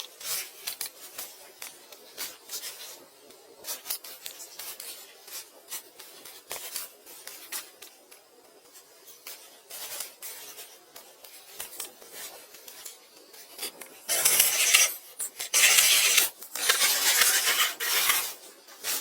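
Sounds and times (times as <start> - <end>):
scraping and rubbing strokes: 14.1 - 18.4.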